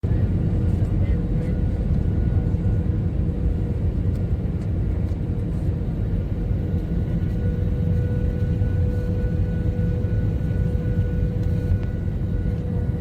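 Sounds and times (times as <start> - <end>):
faint steady whine: 5.1 - 13.0.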